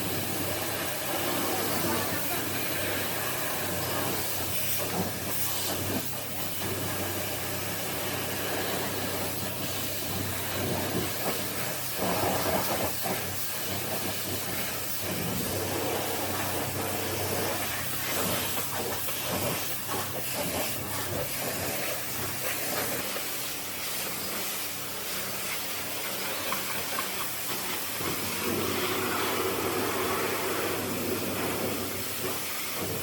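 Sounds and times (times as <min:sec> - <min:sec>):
pressure washer water jet spraying: 0:00.0 - 0:33.0.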